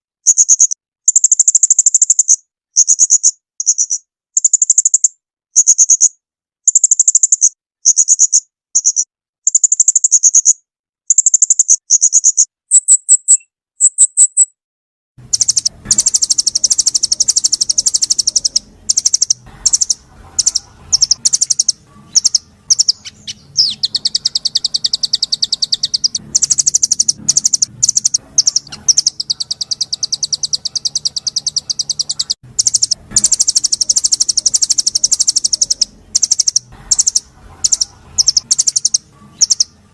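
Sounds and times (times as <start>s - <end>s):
songbird trilling: 0.2s - 14.5s, 15.2s - 39.9s
faint background hum: 15.2s - 39.9s.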